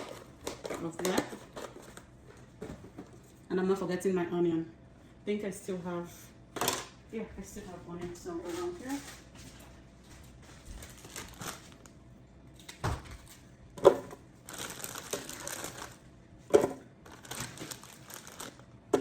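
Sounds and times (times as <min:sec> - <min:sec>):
crinkly packaging rustling: 0:08.4 - 0:11.9, 0:14.0 - 0:16.0, 0:17.0 - 0:19.0.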